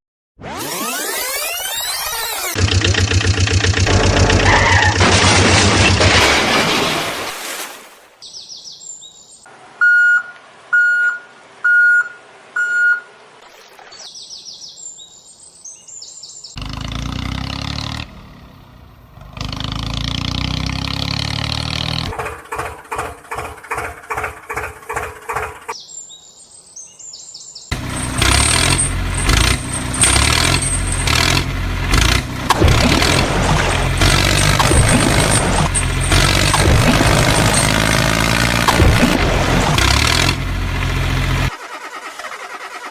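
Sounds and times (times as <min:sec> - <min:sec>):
vehicle engine noise: 0:00.5 - 0:05.3, 0:16.6 - 0:25.7, 0:27.7 - 0:42.9
bird chirps: 0:08.2 - 0:12.0, 0:12.6 - 0:16.6, 0:25.7 - 0:27.7
short beeps: 0:09.8 - 0:13.1.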